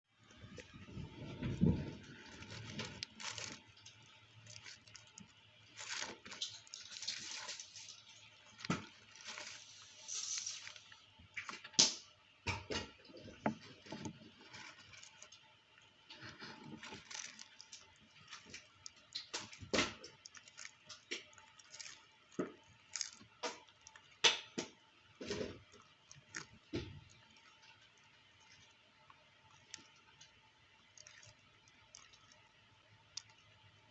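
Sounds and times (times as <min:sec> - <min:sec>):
tortoise chewing vegetables: 0:00.0 - 0:11.9, 0:13.0 - 0:33.9.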